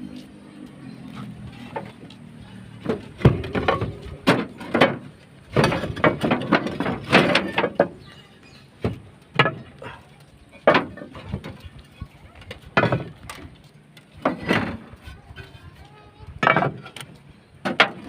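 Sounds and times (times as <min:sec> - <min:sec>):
knocks and clatter of roof work: 0:02.8 - 0:08.2, 0:08.8 - 0:09.9, 0:10.6 - 0:15.6, 0:16.4 - 0:18.0.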